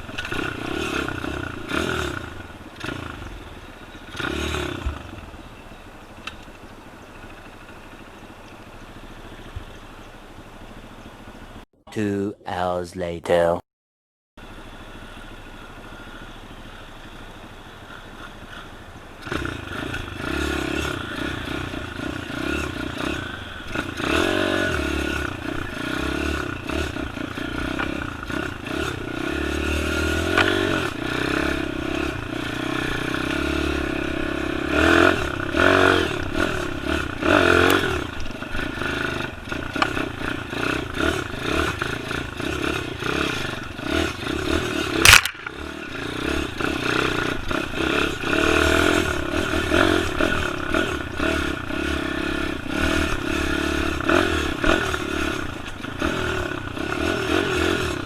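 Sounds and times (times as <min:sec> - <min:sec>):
dirt bike engine revving: 0:00.0 - 0:05.4, 0:19.2 - 0:58.0.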